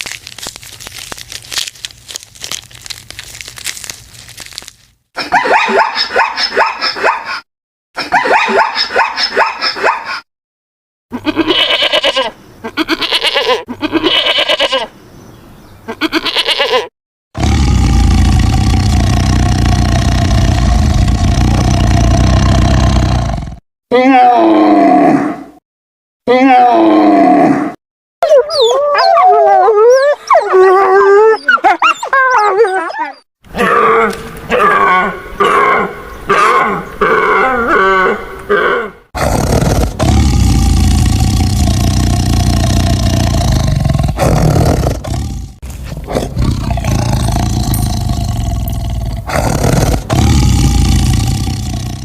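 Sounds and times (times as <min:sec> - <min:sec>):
low rough roar: 0:17.4 - 0:23.6, 0:33.6 - 0:52.0.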